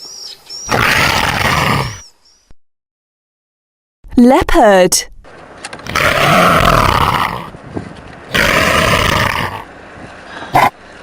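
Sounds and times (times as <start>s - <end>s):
leopard roaring hoarsely: 0.7s - 2.0s, 5.8s - 7.6s, 8.3s - 9.7s, 10.5s - 10.7s.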